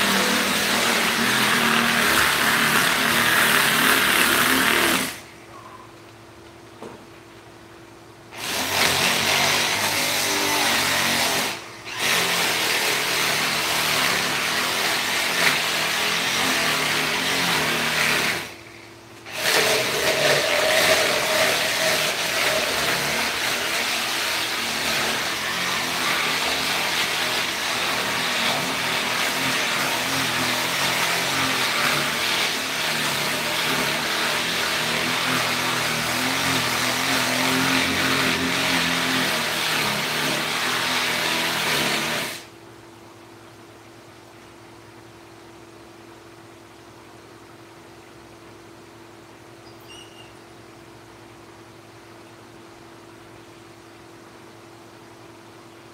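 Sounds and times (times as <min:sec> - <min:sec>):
power tool cutting wood: 0:00.0 - 0:05.3, 0:08.4 - 0:18.6, 0:19.2 - 0:42.5.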